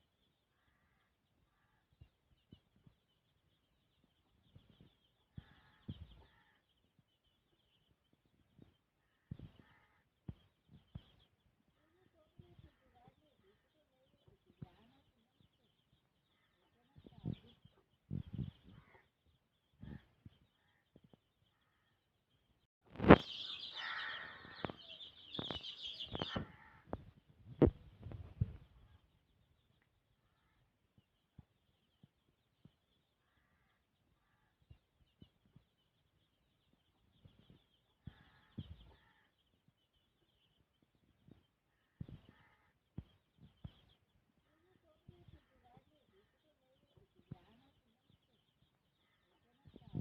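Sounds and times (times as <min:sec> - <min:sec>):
faint bird calls: 0:00.0 - 0:22.2, 0:23.0 - 0:50.0
chickens chirring: 0:22.9 - 0:29.9.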